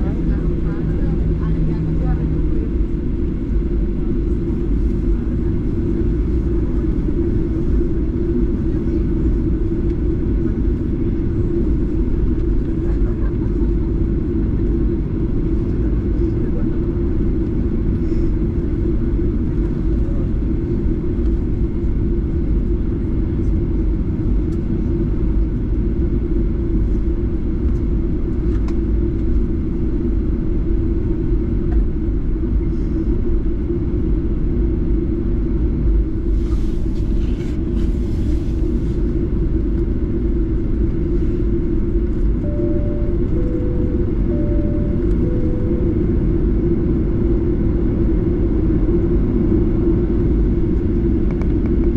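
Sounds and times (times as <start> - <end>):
jet engine rumble in cabin: 0.0 - 51.9
two-tone cabin chime: 42.4 - 46.6.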